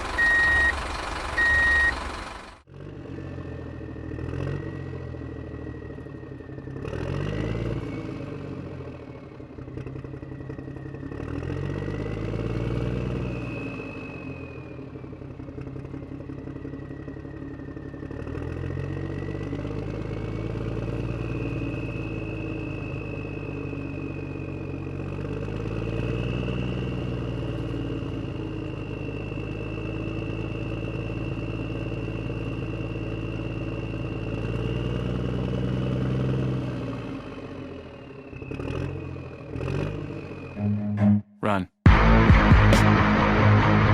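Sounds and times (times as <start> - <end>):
engine revving: 2.7 - 14.8, 24.9 - 37.6, 38.3 - 41.2, 41.9 - 43.9.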